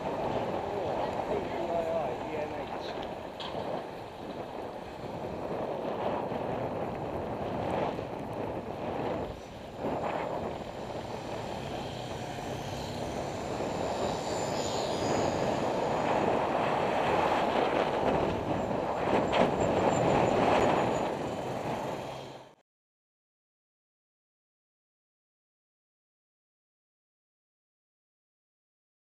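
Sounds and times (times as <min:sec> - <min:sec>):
wind on microphone: 0:00.0 - 0:22.2
heavy traffic rumbling: 0:00.0 - 0:22.6.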